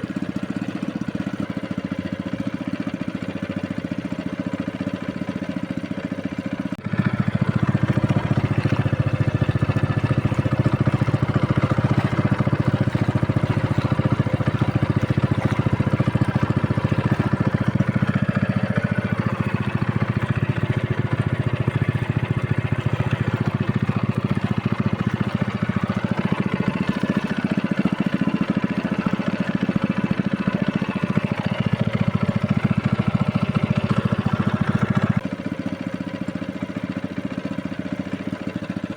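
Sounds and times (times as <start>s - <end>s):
boat motor running: 0.0s - 38.9s.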